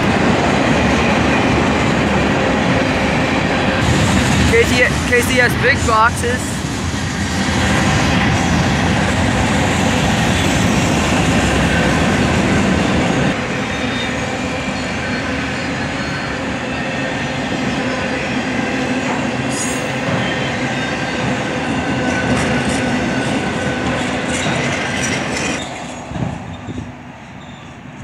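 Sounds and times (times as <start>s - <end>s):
steel wheels rumbling on rail: 0.0s - 28.0s
wheels squealing: 24.3s - 28.0s.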